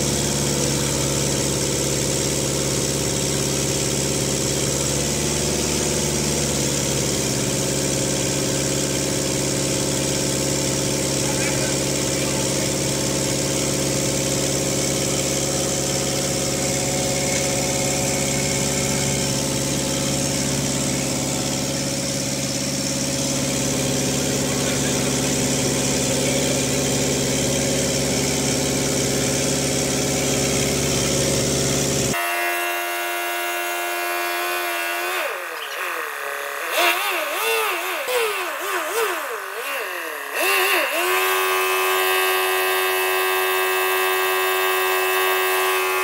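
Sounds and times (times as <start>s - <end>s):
car engine idling: 0.0s - 32.2s
high-pitched hum: 13.6s - 43.3s.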